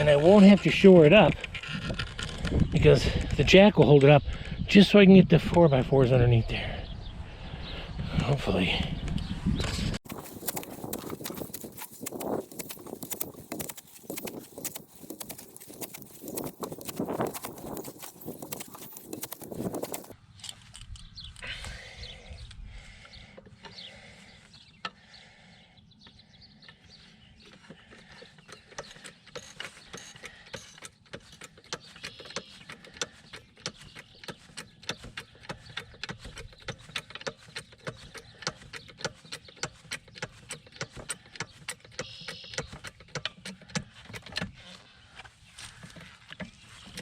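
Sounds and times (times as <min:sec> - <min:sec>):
jack clicking: 0:10.0 - 0:20.2.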